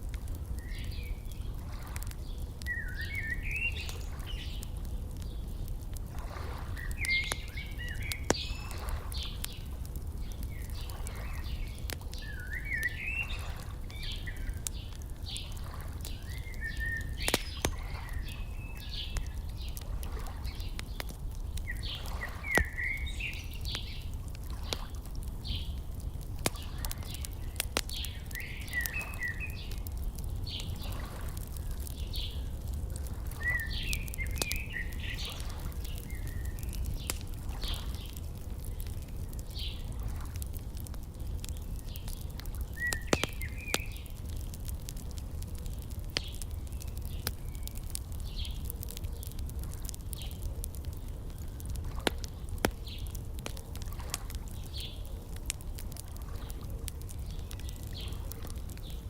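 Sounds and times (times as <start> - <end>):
wood fire crackling: 0.0 - 59.0
birds chirping and trilling: 2.3 - 4.6, 6.7 - 19.8, 20.4 - 24.2, 25.4 - 29.8, 33.3 - 39.8.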